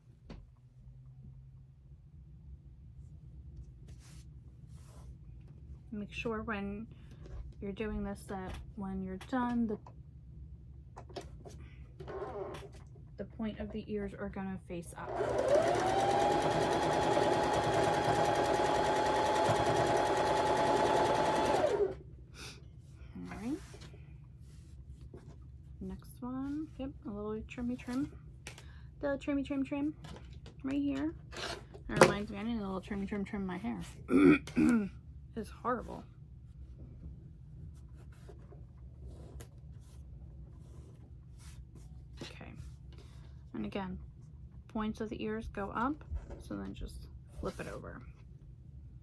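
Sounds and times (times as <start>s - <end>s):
sewing machine whining: 12.0s - 12.7s, 15.0s - 22.0s.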